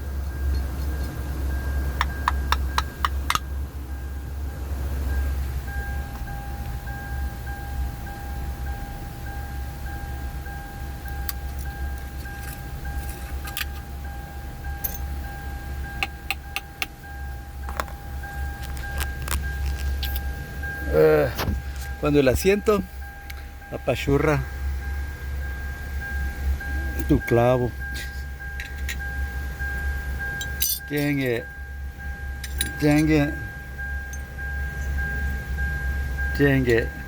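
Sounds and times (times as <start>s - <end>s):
steady low hum: 0.0s - 37.0s
high electronic tone: 3.9s - 37.0s
small hard objects clicking and rattling: 18.6s - 20.3s.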